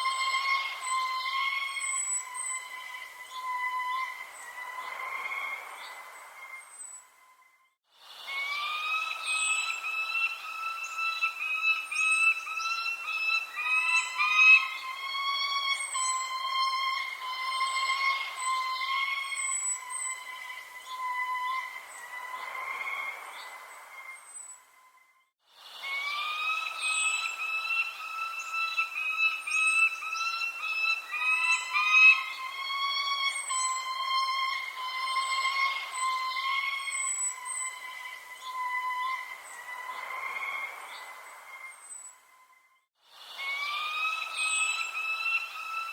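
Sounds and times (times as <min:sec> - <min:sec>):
whistled bird notes: 0:00.0 - 0:45.9
high falling bird chirp: 0:08.5 - 0:22.5.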